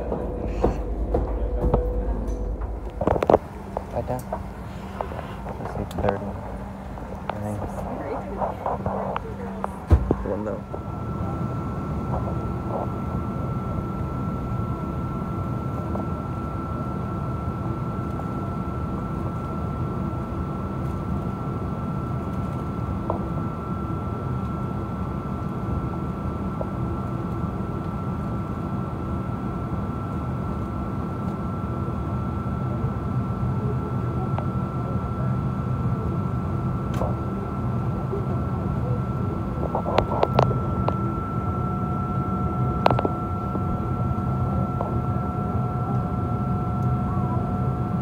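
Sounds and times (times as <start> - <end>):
steady tone: 0.0 - 13.8
high whine: 0.0 - 20.0, 36.8 - 48.0
airplane cabin drone: 0.0 - 48.0.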